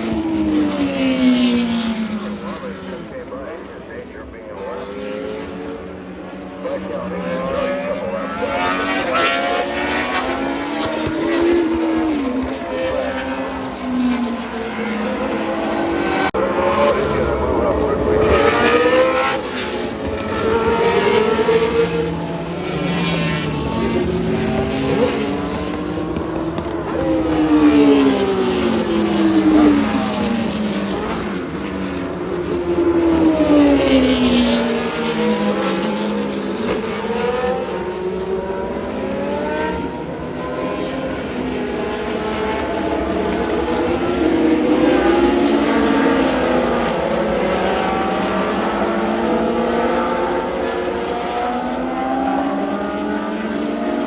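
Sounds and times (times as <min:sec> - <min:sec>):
race cars passing: 0:00.0 - 0:54.0.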